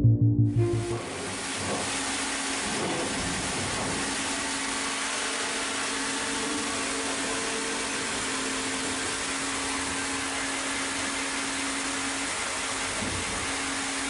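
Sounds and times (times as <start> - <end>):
machine hum: 0.0 - 1.5.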